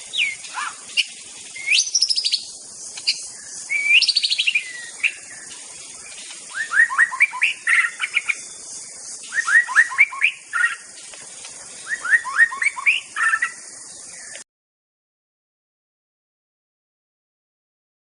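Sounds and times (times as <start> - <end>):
bird singing whistled notes: 0.0 - 10.9, 11.8 - 14.4.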